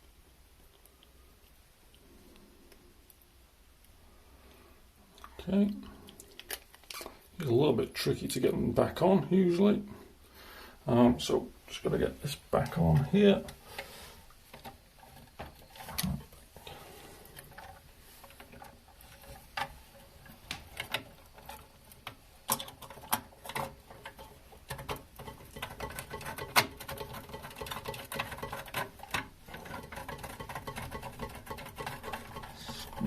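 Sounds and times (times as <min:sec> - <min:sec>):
plastic parts scraping: 0:11.9 - 0:33.0.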